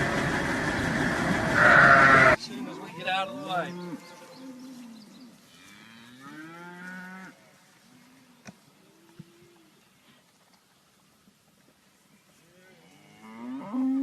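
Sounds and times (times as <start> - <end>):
cattle mooing: 1.5 - 7.4, 12.7 - 14.0.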